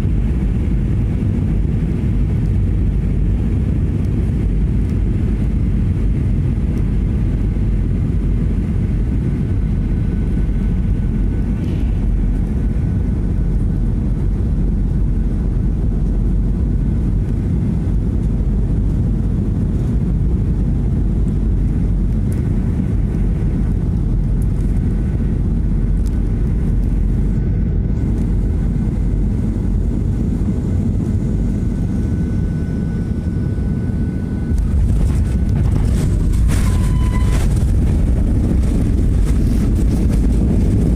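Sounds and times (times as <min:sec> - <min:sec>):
jet engines and airflow rumble: 0:00.0 - 0:40.9
faint high whine: 0:27.0 - 0:39.9.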